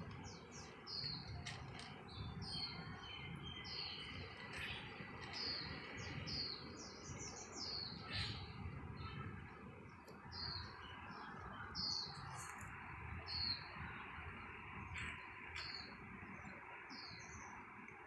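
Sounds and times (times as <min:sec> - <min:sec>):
small bird chirping: 0:00.2 - 0:09.2, 0:10.1 - 0:12.7.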